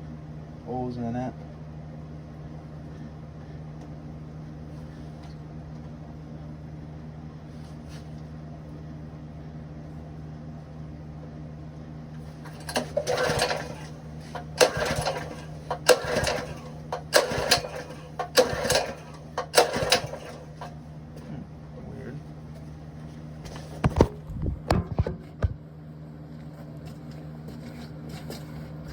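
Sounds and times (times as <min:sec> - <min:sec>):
steady low hum: 0:00.0 - 0:28.9
engine pull-start cranking whir: 0:12.3 - 0:20.8.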